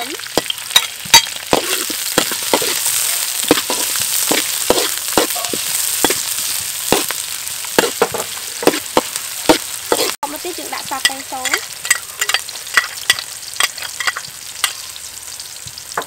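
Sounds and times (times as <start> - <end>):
onion and garlic sizzling in oil: 0.0 - 16.0
metal ladle clinking on wok: 11.0 - 14.8.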